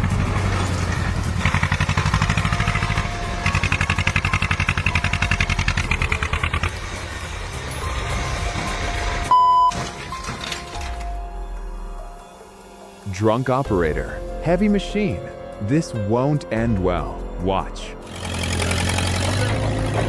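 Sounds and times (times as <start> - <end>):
heavy engine pulsing: 0.0 - 9.3, 18.0 - 20.0
short loud beep: 9.3 - 9.8.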